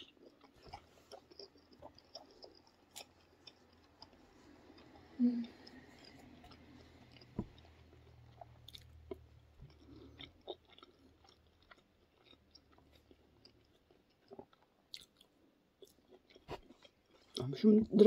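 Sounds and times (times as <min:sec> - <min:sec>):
faint chewing: 0:00.0 - 0:18.0.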